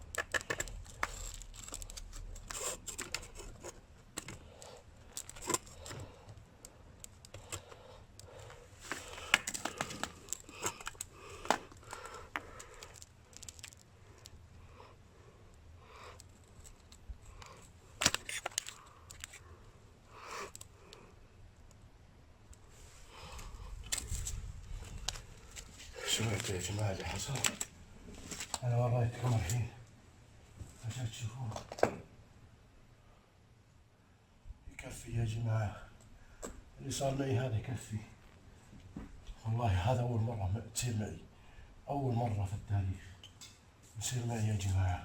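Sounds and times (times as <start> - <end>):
clicks scrapes and rustling: 0.0 - 14.5, 16.1 - 19.5, 22.5 - 29.6.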